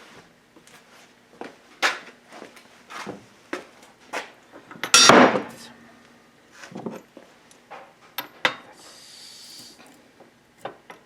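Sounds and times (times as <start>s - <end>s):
metal tools knocking and clicking: 4.8s - 5.3s
ringing metal strike: 4.9s - 6.3s
soft hiss: 8.8s - 9.9s.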